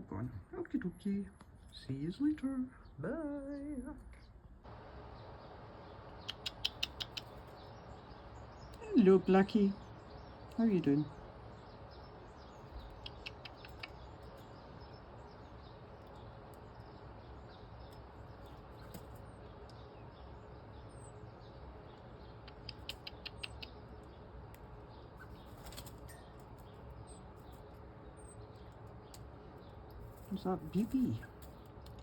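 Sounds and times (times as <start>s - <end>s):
small birds chirping: 0.0s - 32.0s
quick clicks: 6.2s - 7.5s, 12.9s - 14.0s, 22.5s - 23.8s.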